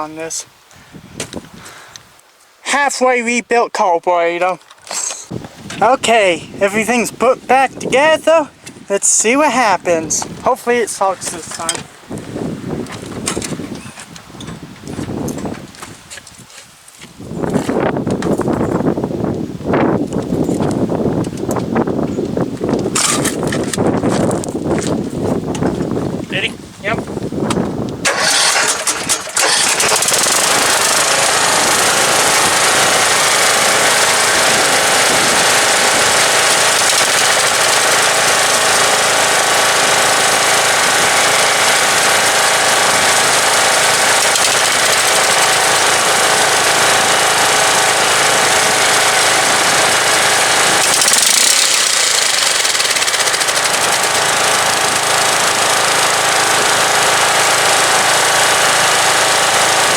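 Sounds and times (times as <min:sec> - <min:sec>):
lawn tractor engine running: 0:04.4 - 0:11.9, 0:20.1 - 0:26.1, 0:27.5 - 0:59.9.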